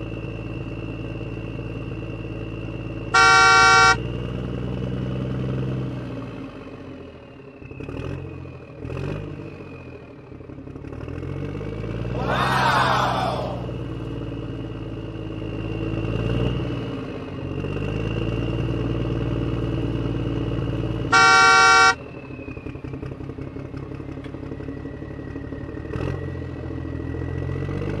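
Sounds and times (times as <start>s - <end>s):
truck engine running: 0.0s - 4.7s, 19.2s - 27.6s
horn honk: 3.2s - 4.0s, 21.1s - 22.0s.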